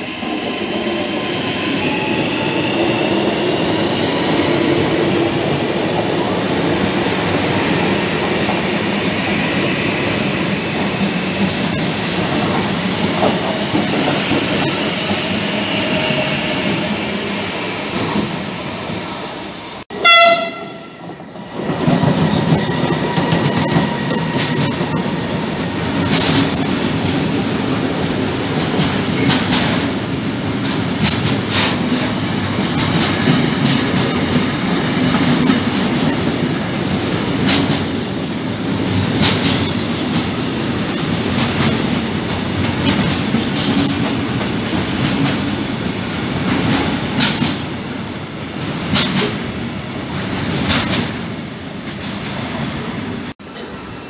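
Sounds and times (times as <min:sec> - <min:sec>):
train wheels rumbling on rail: 0:00.0 - 0:54.0
wheels clacking over rail joints: 0:21.5 - 0:27.2, 0:38.9 - 0:47.8.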